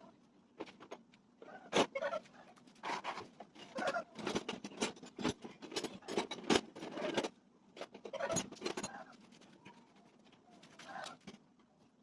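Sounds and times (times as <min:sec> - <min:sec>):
tools clicking and scraping: 0:02.6 - 0:11.4.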